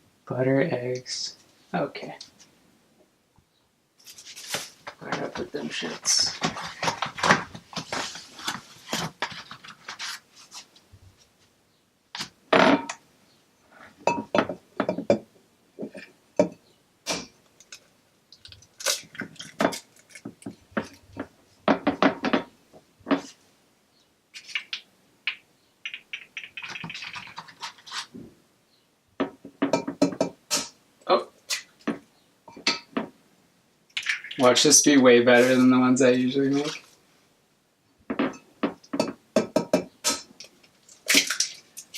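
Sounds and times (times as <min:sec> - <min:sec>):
dishes and utensils clattering: 0:14.0 - 0:15.2, 0:31.9 - 0:33.1.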